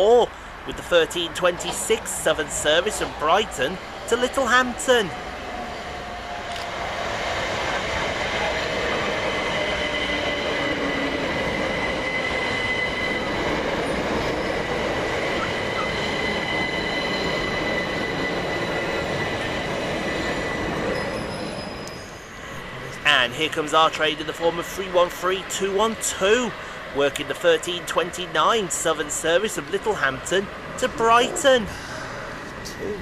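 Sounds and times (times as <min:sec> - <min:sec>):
train wheels rumbling on rail: 0:00.0 - 0:22.8.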